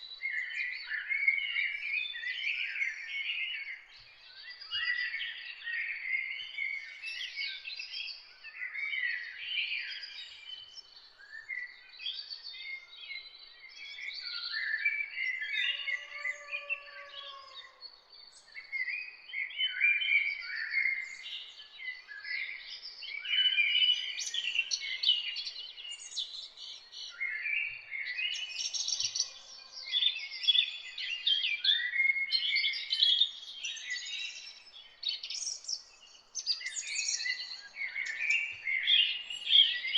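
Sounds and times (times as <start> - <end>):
songbirds chorus: 0.0 - 39.9
lower drawn-out bird calls: 15.4 - 17.8.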